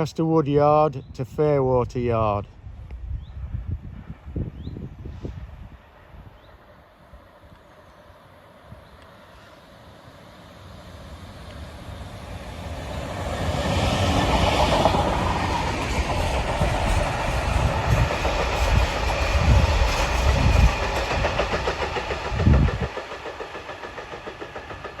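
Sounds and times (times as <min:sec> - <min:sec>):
locomotive engine: 0:10.4 - 0:25.0.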